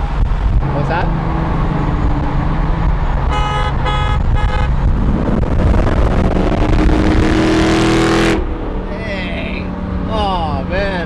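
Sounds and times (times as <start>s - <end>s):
car engine running and revving: 0.0s - 11.0s
car horn honking: 3.2s - 4.8s.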